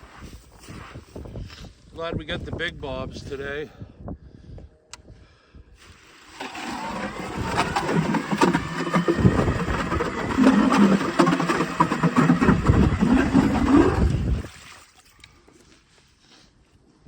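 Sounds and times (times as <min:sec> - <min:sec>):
small gas engine revving: 0:06.2 - 0:14.5.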